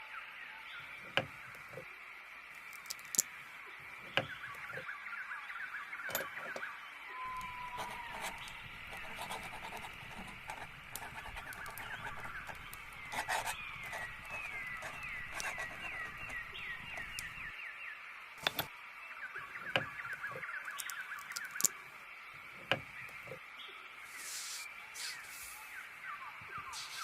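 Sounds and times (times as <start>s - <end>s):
soft steady hiss: 0.1s - 27.0s
songbirds chirping in trills: 0.2s - 27.0s
sharp clicks: 7.4s - 17.5s.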